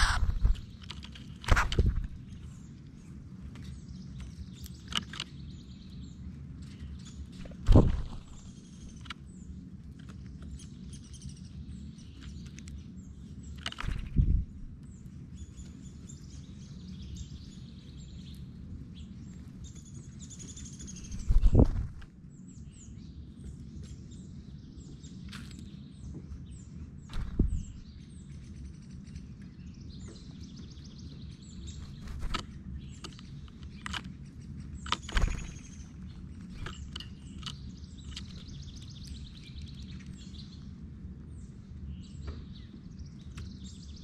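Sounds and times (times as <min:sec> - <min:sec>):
low background rumble: 0:00.0 - 0:44.0
small birds chirping: 0:00.0 - 0:44.0
loud low bumps: 0:07.5 - 0:08.5, 0:27.1 - 0:27.8.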